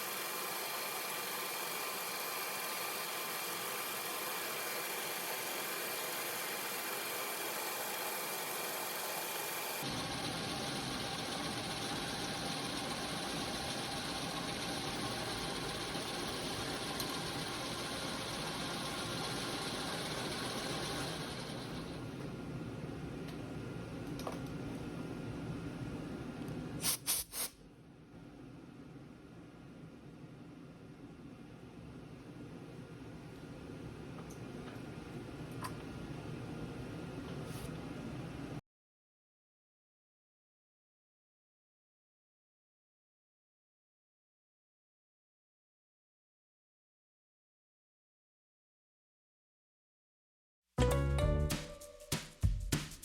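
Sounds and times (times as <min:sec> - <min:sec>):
milling machine running: 0:00.0 - 0:22.5.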